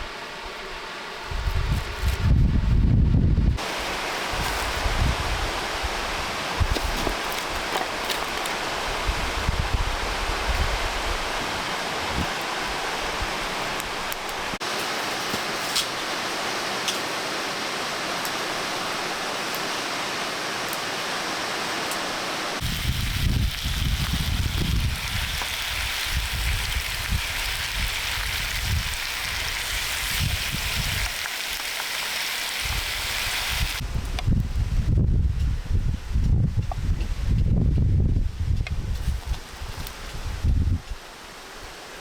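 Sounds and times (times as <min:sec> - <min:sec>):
low rumbling gusts: 0:00.0 - 0:07.6, 0:08.5 - 0:14.6, 0:22.6 - 0:31.1, 0:32.6 - 0:41.0
waterfall rushing: 0:03.6 - 0:06.6, 0:10.8 - 0:22.7.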